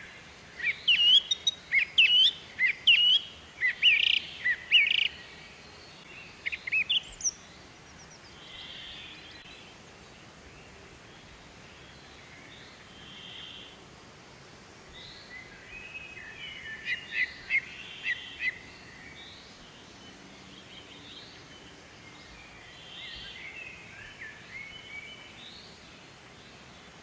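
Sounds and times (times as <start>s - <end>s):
birds chirping and calling: 0.0s - 9.6s, 15.0s - 25.8s
background hiss: 0.0s - 27.0s.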